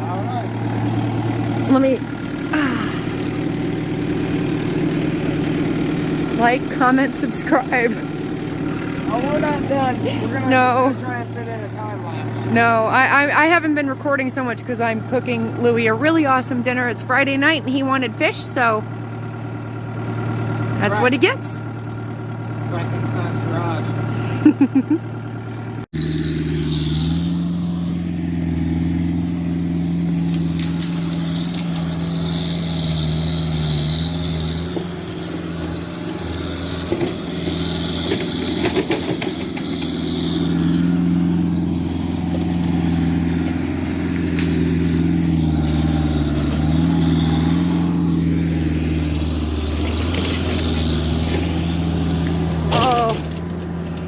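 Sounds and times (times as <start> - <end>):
engine running: 0.0 - 54.0
metallic clanks: 30.0 - 48.2, 48.9 - 54.0.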